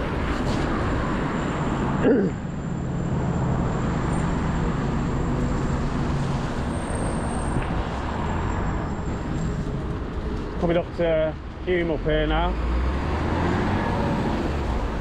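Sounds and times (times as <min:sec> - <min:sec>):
traffic engine drone: 0:00.0 - 0:15.0
vehicle passing close by: 0:12.5 - 0:15.0.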